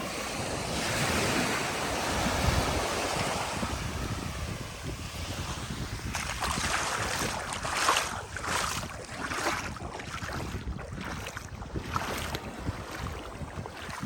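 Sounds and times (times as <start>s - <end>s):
sea waves breaking on sand: 0.0s - 14.0s
wind buffeting microphone: 0.0s - 14.0s.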